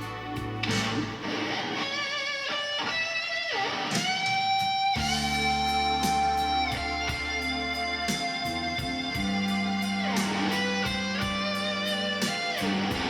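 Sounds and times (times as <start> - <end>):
bass: 0.0 - 1.4, 4.9 - 13.0
lead guitar with vibrato: 0.0 - 13.0.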